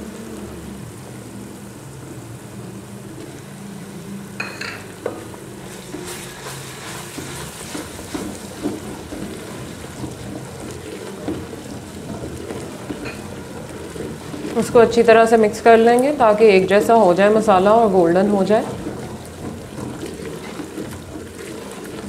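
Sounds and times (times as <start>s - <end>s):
onion paste sizzling in oil: 0.0s - 22.0s
wooden spoon scraping pot: 5.0s - 22.0s.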